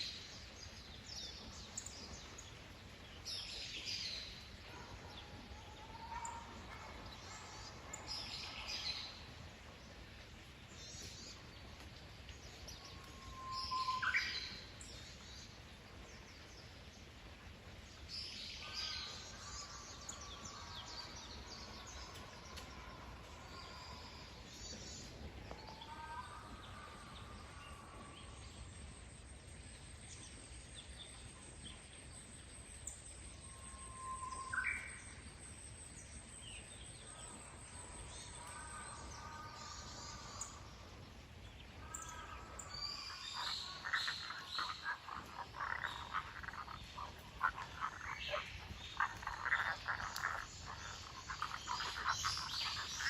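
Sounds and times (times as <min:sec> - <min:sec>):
bird calls: 0:41.8 - 0:53.0
frogs croaking: 0:41.8 - 0:53.0.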